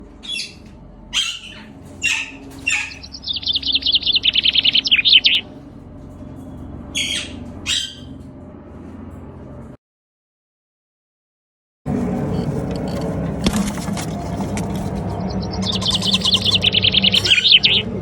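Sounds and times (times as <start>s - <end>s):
parakeets screeching: 0.2s - 5.8s, 6.4s - 8.2s, 14.9s - 18.0s
parakeet chattering: 1.2s - 5.5s, 7.0s - 8.1s, 15.2s - 18.0s.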